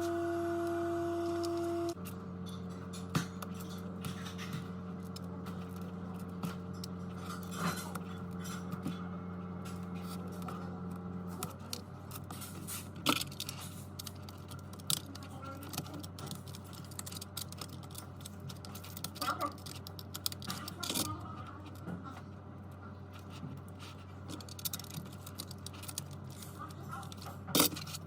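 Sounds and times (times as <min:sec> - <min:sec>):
low machine hum: 0:00.0 - 0:28.0
repair tools clicking and scraping: 0:23.2 - 0:28.0.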